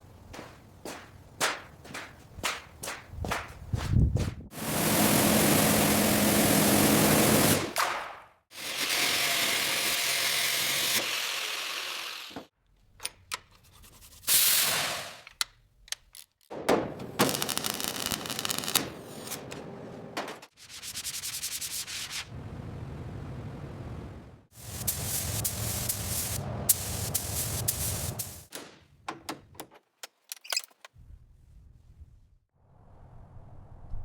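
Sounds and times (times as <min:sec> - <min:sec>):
sanding rusted metal: 0:24.6 - 0:28.5.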